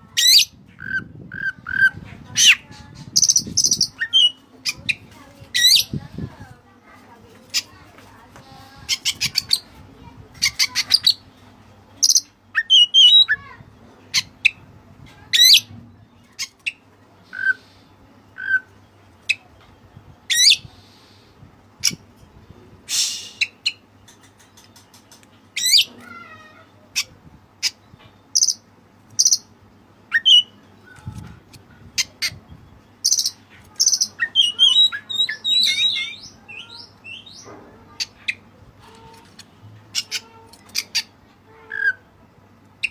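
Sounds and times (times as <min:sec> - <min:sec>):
songbird singing: 0:00.2 - 0:06.4, 0:10.3 - 0:14.7, 0:23.0 - 0:42.9.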